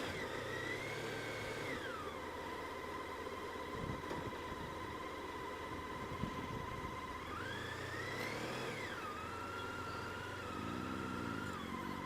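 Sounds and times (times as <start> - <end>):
vehicle engine accelerating: 0.0 - 2.3, 5.9 - 12.0.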